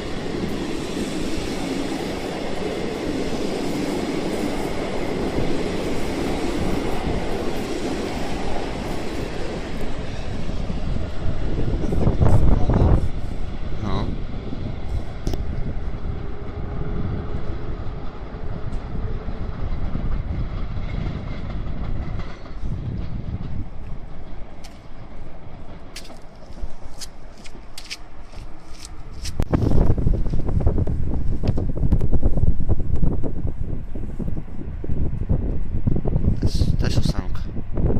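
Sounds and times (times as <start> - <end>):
wind gust on microphone: 0.0 - 25.8, 28.5 - 37.9
train wheels on track: 0.0 - 37.9.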